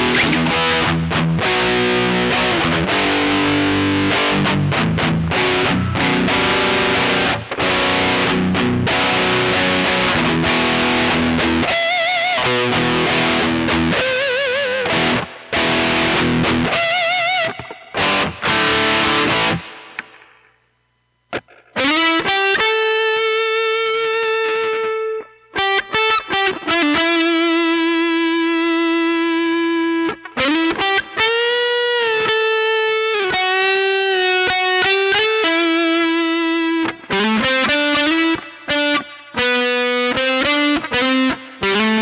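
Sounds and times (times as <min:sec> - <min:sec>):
distorted electric guitar lead: 0:00.0 - 0:20.6, 0:21.3 - 0:42.0.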